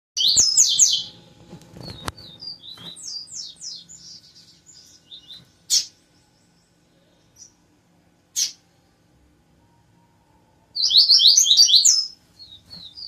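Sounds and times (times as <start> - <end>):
bird singing high notes: 9.7 - 13.0.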